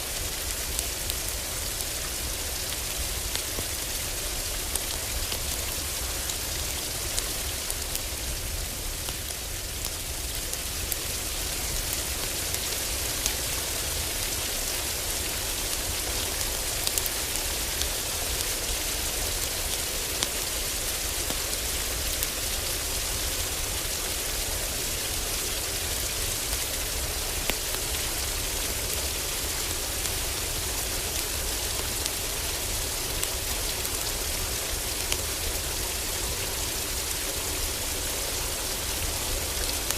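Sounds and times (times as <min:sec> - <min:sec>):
heavy rain on roof: 0:00.0 - 0:39.9
wood fire crackling: 0:16.4 - 0:18.5.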